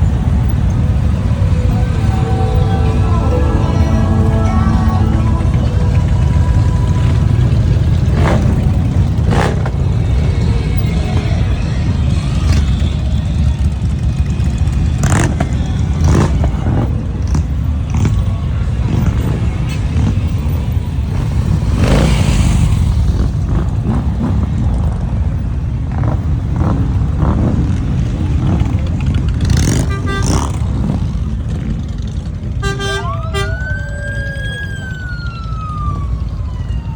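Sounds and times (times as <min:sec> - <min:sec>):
motorcycle engines rumbling: 0:00.0 - 0:36.9.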